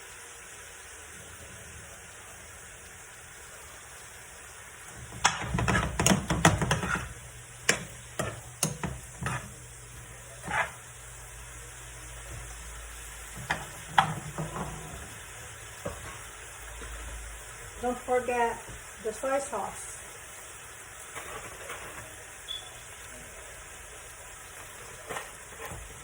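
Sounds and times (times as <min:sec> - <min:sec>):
chicken sizzling in a pan: 0:00.0 - 0:26.0
utensil knocking against pan: 0:05.1 - 0:09.5, 0:13.4 - 0:14.9.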